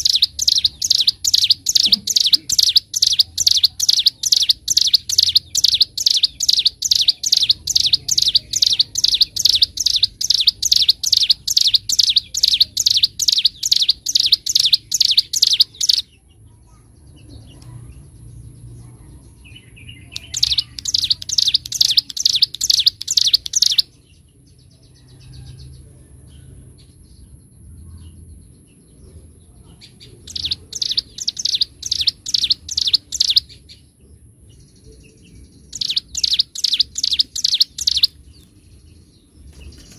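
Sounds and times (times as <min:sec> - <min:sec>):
bird singing sharp high notes: 0:00.0 - 0:16.1, 0:20.1 - 0:23.9, 0:30.3 - 0:33.6, 0:35.7 - 0:38.2.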